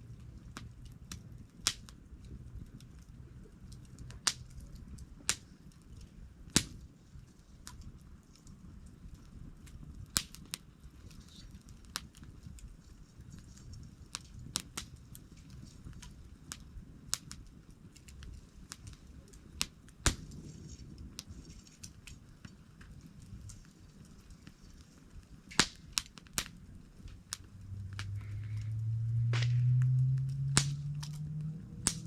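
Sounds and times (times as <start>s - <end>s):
campfire crackling and popping: 0.0s - 32.0s
low hum rising in pitch: 27.4s - 32.0s.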